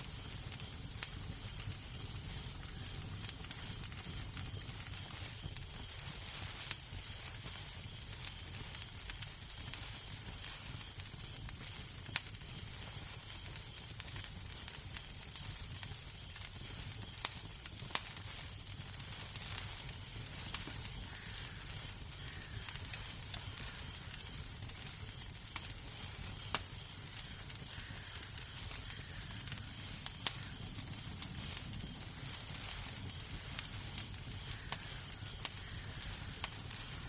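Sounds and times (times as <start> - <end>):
sharp fire pops: 0.0 - 37.0
wood fire crackling: 0.0 - 37.0.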